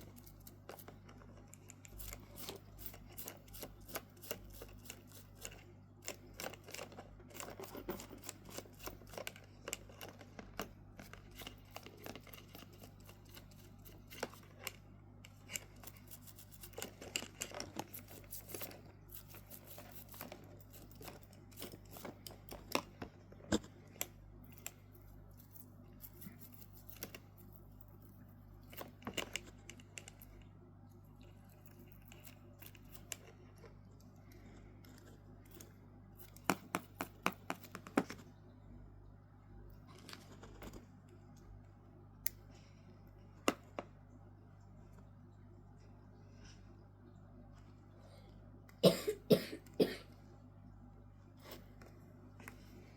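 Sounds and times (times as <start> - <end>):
clicks and scrapes of watch parts: 0.0 - 30.4.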